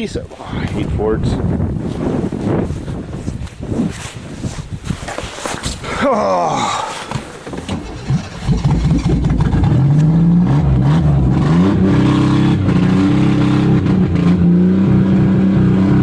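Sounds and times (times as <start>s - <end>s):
car engine revving: 7.7s - 16.0s.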